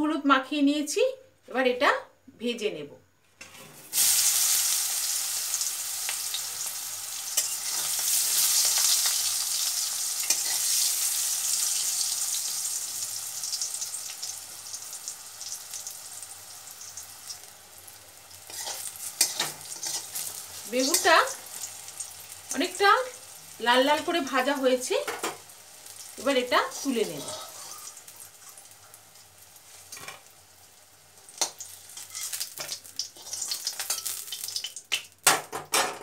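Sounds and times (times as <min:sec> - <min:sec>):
metal spatula scraping wok: 0:03.4 - 0:04.0, 0:07.3 - 0:11.1, 0:18.4 - 0:21.7, 0:26.7 - 0:28.6, 0:31.3 - 0:34.4
eggplant sizzling in hot oil: 0:03.4 - 0:35.4.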